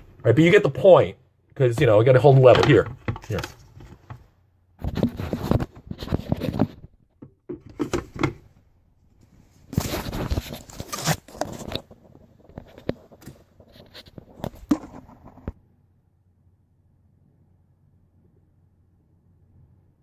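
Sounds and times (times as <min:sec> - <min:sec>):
objects being handled: 0:01.6 - 0:15.6.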